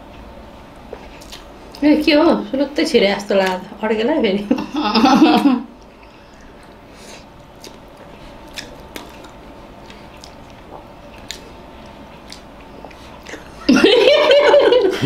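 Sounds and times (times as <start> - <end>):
person chewing egg: 0.8 - 1.8, 5.8 - 13.7.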